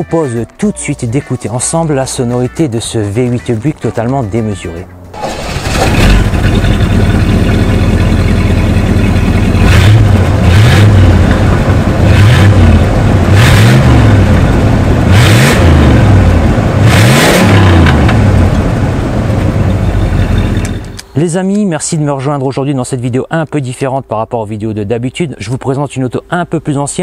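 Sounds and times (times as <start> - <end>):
car engine idling and revving: 5.1 - 21.1.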